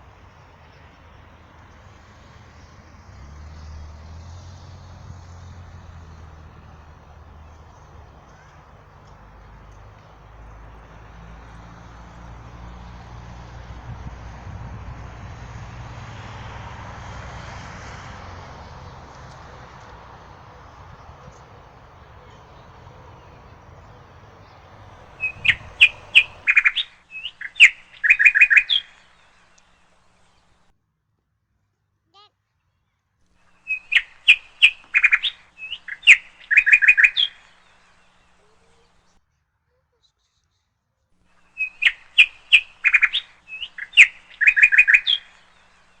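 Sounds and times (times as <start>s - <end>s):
songbird singing: 3.5s - 14.2s, 18.0s - 30.6s, 33.5s - 39.2s, 41.3s - 46.0s
low background rumble: 20.3s - 26.6s
small bird chirping and trilling: 21.3s - 29.3s, 33.5s - 37.8s, 41.4s - 45.7s.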